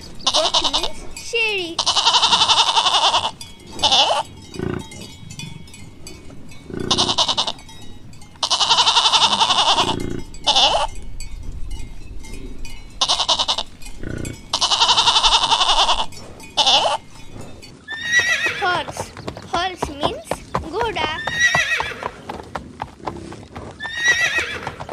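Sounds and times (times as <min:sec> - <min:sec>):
goat bleating: 0:00.2 - 0:04.9, 0:06.8 - 0:07.6, 0:08.4 - 0:10.9, 0:13.0 - 0:17.1.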